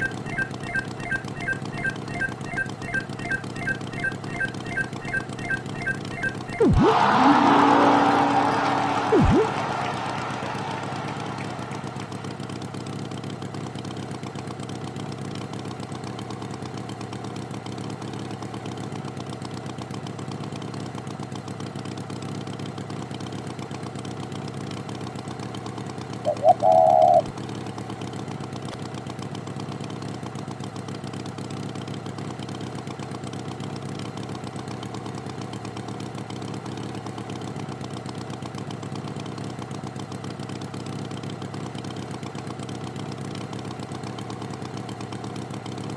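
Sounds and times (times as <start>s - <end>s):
loud horn honk: 6.6s - 12.4s.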